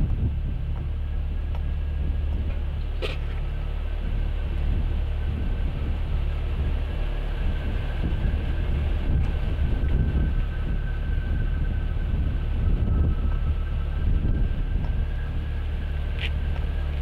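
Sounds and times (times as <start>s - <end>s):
vehicle rumbling: 0.0s - 17.0s.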